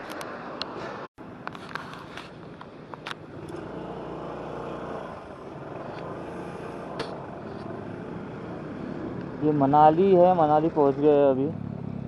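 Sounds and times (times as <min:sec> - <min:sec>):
road noise: 0:00.0 - 0:12.0
motorcycle engine running: 0:03.1 - 0:12.0.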